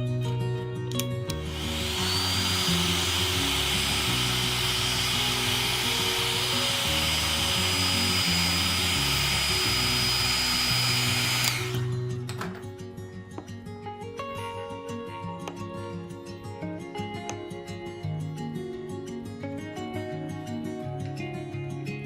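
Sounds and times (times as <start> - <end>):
guitar music: 0.0 - 22.0
power tool motor whine: 1.3 - 12.0.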